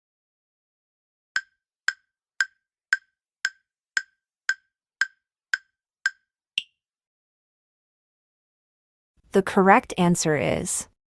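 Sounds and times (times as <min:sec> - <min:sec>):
countdown timer ticking: 0:01.4 - 0:06.7.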